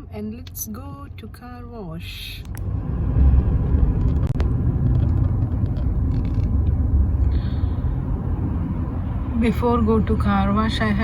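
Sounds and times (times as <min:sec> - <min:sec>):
road noise: 0:00.0 - 0:11.0
pickup truck engine rumble: 0:02.4 - 0:11.0.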